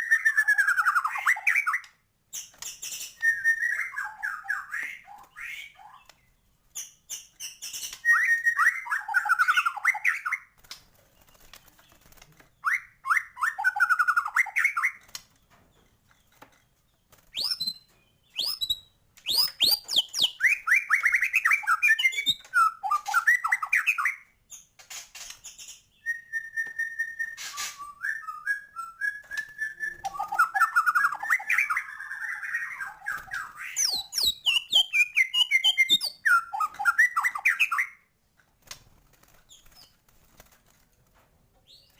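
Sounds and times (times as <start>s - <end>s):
bird singing whistles and trills: 0.0s - 6.1s, 7.1s - 10.5s, 12.6s - 15.0s, 17.3s - 24.3s, 25.6s - 38.0s.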